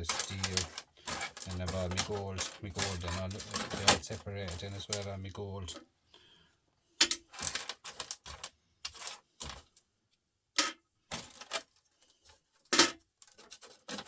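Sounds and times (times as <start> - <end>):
small parts clattering on hard surface: 0.0 - 5.8, 7.0 - 9.8, 10.6 - 14.0.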